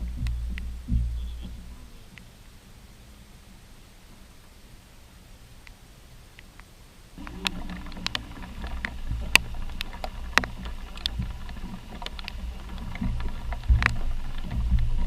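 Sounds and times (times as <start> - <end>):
boat motor running: 0.0 - 2.2, 7.2 - 15.0
sharp clicks and knocks: 0.0 - 2.3, 6.4 - 15.0.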